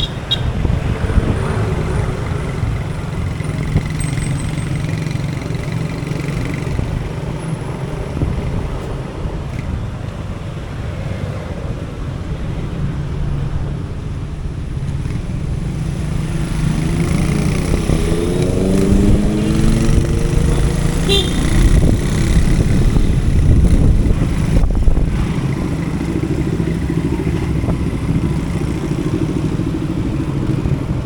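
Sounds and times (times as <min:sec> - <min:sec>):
motorcycle engine running: 0:00.0 - 0:08.6, 0:14.9 - 0:31.0
road noise: 0:00.0 - 0:31.0.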